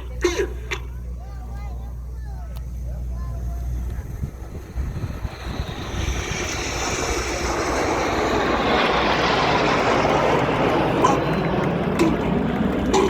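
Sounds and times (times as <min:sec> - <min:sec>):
high whine sliding down: 0:02.6 - 0:13.0
jets flying past: 0:02.6 - 0:13.0.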